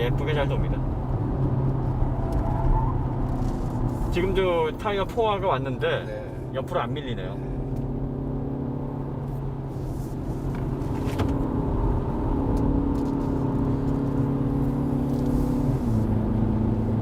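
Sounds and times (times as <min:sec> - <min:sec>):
car engine at high revs: 0:00.0 - 0:17.0.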